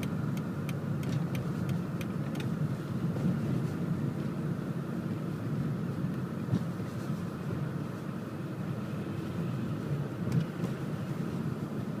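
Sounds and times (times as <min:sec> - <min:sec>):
car engine and tyre drone: 0:00.0 - 0:12.0.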